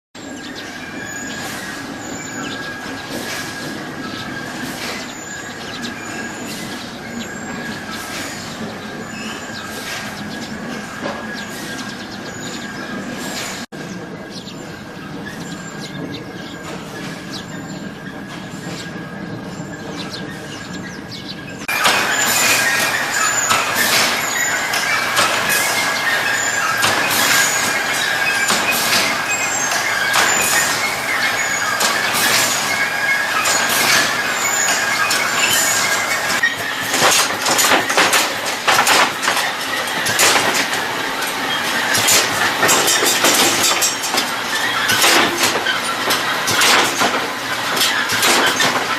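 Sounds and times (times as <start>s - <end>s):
machine with high squeal: 0.2s - 48.9s
clatter of clicks and rattles: 33.4s - 48.9s.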